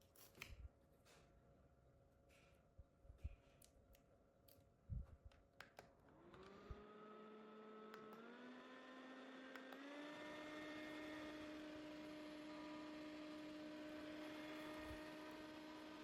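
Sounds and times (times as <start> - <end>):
handheld fan motor whine: 6.1 - 16.0.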